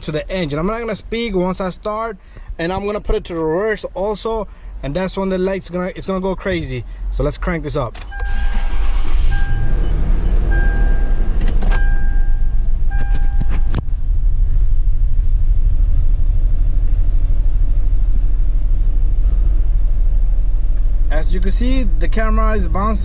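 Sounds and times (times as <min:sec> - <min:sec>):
dashboard warning chime: 0:08.1 - 0:13.8
engine running rough: 0:08.2 - 0:23.0.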